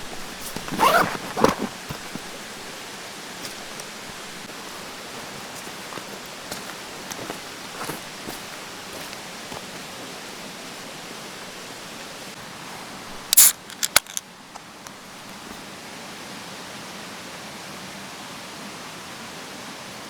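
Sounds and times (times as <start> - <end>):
flowing water hiss: 1.4 - 16.9.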